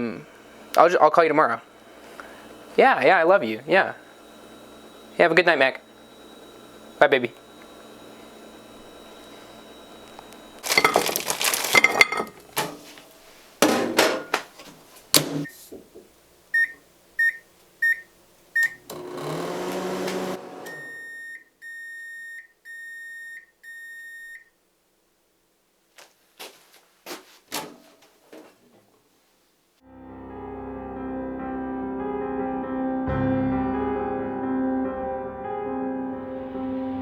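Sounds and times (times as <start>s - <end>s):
microwave hum: 0.0s - 21.9s
keypad beeps: 16.6s - 18.8s, 20.7s - 24.5s
microwave oven clattering clicks: 18.6s - 20.8s.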